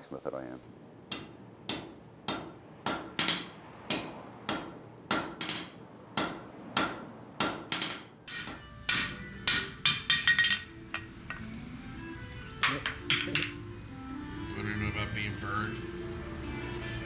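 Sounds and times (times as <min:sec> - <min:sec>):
hammer striking anvil: 0:01.1 - 0:11.5, 0:12.6 - 0:13.6.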